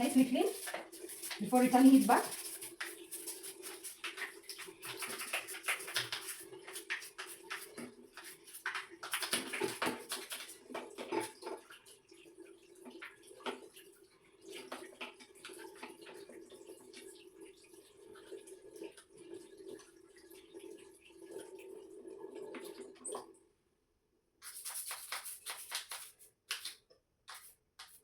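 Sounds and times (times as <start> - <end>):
brush scrubbing: 0.0 - 11.4, 24.4 - 28.0
water splashing: 0.0 - 11.8.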